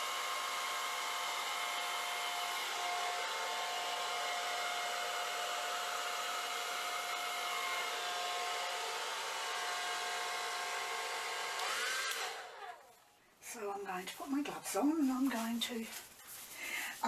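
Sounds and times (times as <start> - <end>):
blow dryer running: 0.0 - 12.9.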